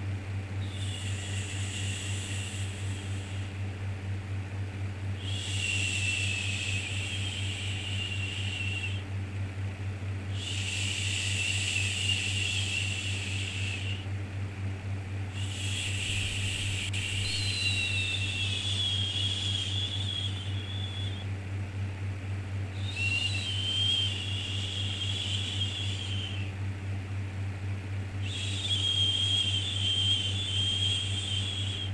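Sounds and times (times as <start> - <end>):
low hum: 0.0 - 9.1, 10.4 - 14.1, 15.1 - 21.3.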